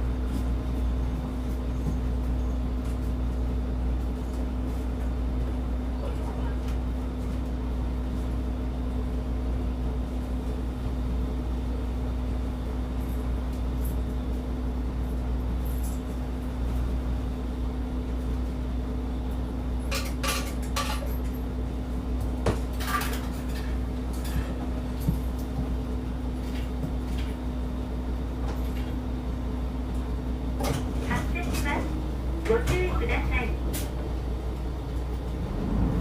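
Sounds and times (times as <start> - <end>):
bus engine hum: 0.0 - 36.0
clinks and rattles in cabin: 14.9 - 16.7, 19.7 - 27.5, 28.3 - 29.1, 30.0 - 34.0.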